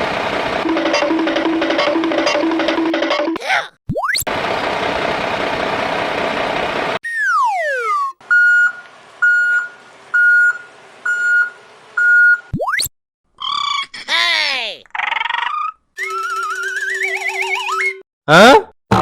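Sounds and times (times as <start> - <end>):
quick rising tone: 7.0 - 8.2
falling whistle-like tone: 7.0 - 9.4, 16.0 - 18.0
vehicle reversing alarm beeping: 7.4 - 12.5.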